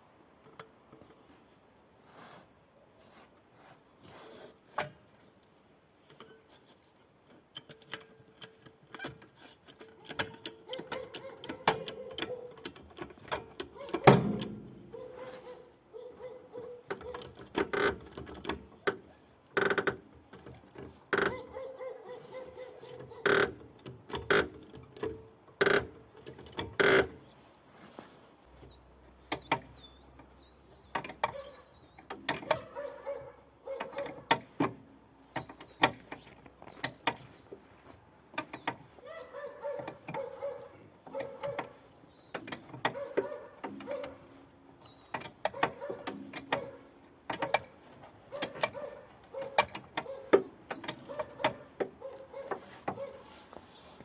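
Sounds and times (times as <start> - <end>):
metal tools clanking and clicking: 30.8 - 32.8.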